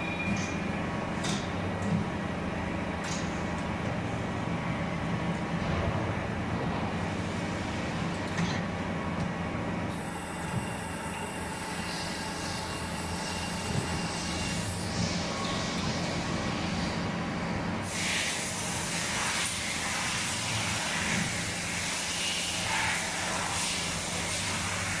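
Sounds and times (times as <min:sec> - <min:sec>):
boring machine hum: 0:00.0 - 0:17.9
machine hiss: 0:17.8 - 0:25.0.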